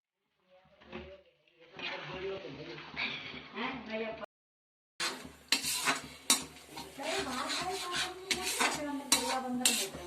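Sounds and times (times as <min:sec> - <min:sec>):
spoon scraping a cooking pot: 0:05.0 - 0:10.0.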